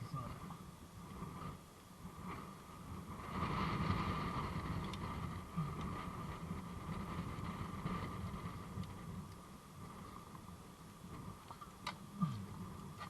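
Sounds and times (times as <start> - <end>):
wind gusting over microphone: 0.0 - 13.0
faint clicks: 4.8 - 5.1.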